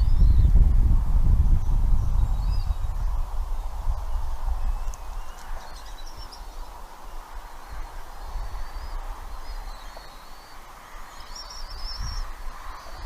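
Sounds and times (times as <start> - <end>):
wind rumble on microphone: 0.0 - 13.0
high bird chirps: 4.0 - 6.7.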